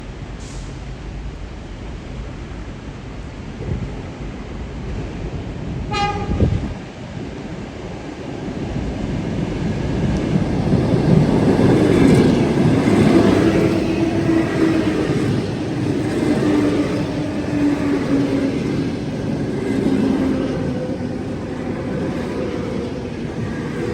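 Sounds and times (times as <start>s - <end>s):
steady train whine: 0.0s - 23.9s
train rumbling: 0.0s - 23.9s
train horn blast: 5.9s - 6.8s.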